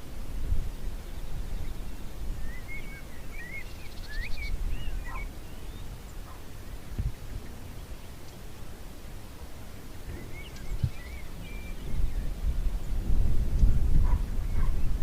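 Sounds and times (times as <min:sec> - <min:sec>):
songbird warbling with trill: 0:01.0 - 0:06.5, 0:09.9 - 0:12.4, 0:14.1 - 0:15.0.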